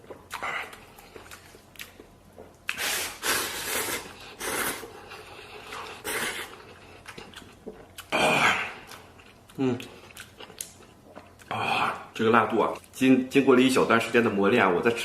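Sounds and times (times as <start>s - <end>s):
person slurping noodles: 2.7s - 6.6s.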